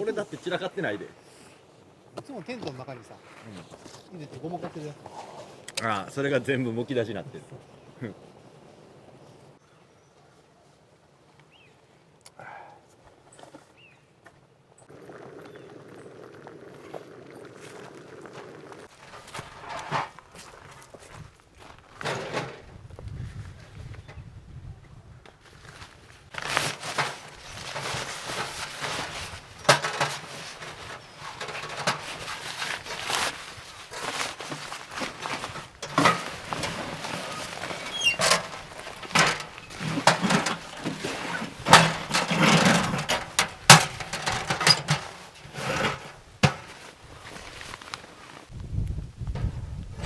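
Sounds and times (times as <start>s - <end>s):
knocks and clacks of handling: 21.9s - 22.7s, 26.3s - 48.5s.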